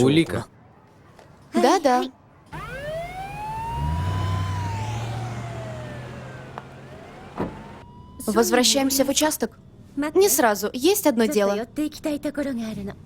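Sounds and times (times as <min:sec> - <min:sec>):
police siren wailing: 0:02.5 - 0:09.2
low engine hum: 0:02.6 - 0:07.8.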